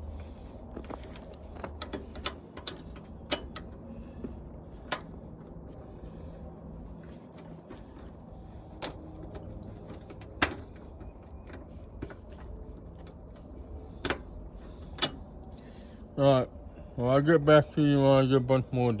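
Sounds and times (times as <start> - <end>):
metal parts knocking and clanking: 0.7 - 5.4, 8.7 - 15.3.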